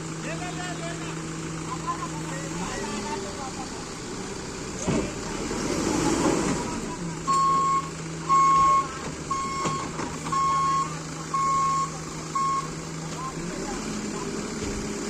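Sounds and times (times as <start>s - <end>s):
heavy vehicle engine humming: 0.0s - 15.0s
reversing alarm beeping: 7.3s - 12.8s.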